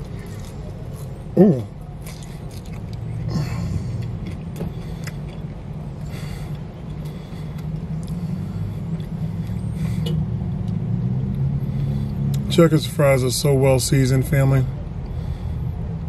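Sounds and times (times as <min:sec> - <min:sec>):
car engine idling: 0:00.0 - 0:16.0
faint chewing clicks: 0:03.9 - 0:08.2.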